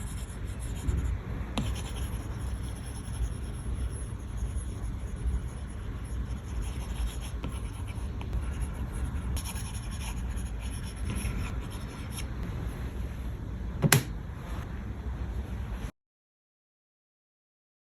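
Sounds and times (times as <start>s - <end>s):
stylus scratching on glass screen: 0.0s - 12.3s.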